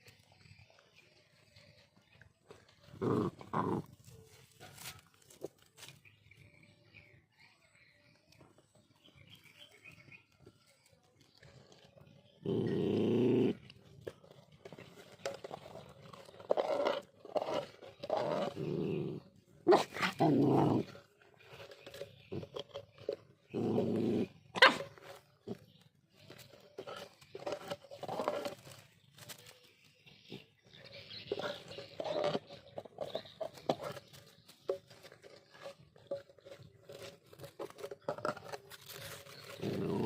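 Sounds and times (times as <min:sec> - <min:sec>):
dogs growling: 0:01.8 - 0:04.2, 0:11.4 - 0:28.8, 0:30.2 - 0:40.0.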